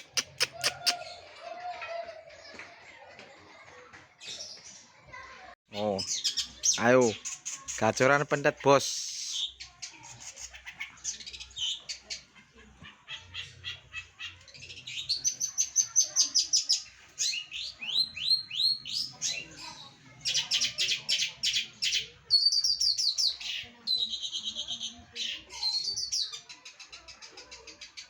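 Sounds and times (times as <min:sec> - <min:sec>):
shrike singing trills and chirps: 0:14.6 - 0:26.4.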